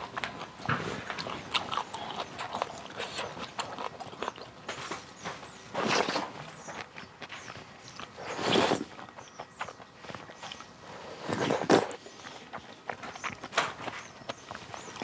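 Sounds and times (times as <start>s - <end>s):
chewing and utensil clicks: 0.0s - 15.0s
noisy slurps: 5.7s - 6.5s, 8.0s - 9.1s, 10.9s - 12.6s.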